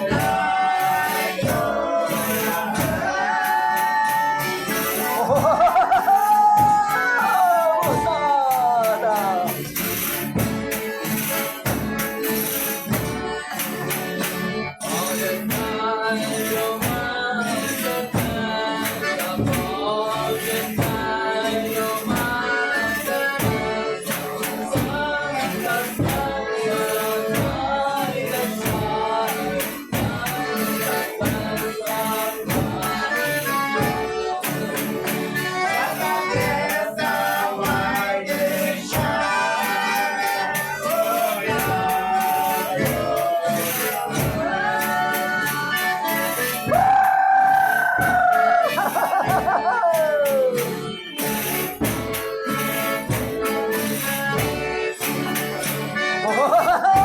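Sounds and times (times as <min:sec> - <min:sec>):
tambourine shaken and struck: 0:00.0 - 0:23.5
group singing together: 0:00.0 - 0:57.0.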